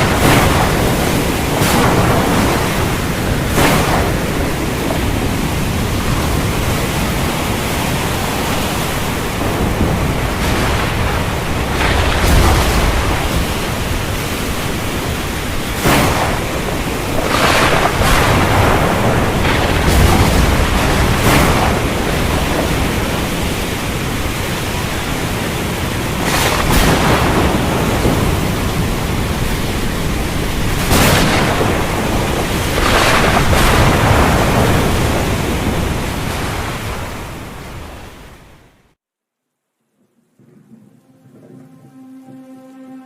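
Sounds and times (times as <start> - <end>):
sharp thunder cracks: 0.0 - 25.2, 26.1 - 37.6
heavy rain hiss: 0.0 - 38.3.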